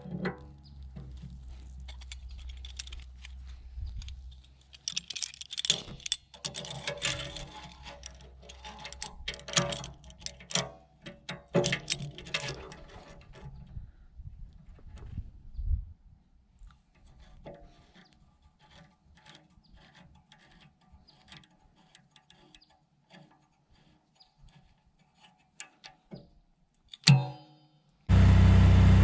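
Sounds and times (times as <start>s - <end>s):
metallic clinks and rattles: 0.2s - 13.6s
low hum: 28.1s - 29.0s.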